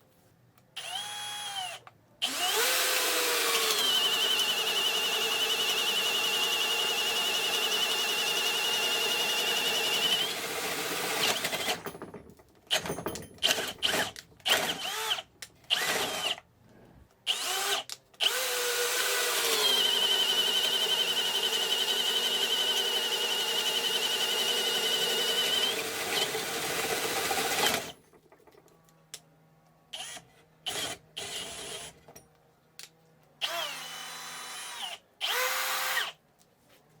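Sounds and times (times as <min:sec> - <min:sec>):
cordless drill whining: 0:00.8 - 0:11.9, 0:13.4 - 0:16.4, 0:17.3 - 0:28.0, 0:33.4 - 0:36.2.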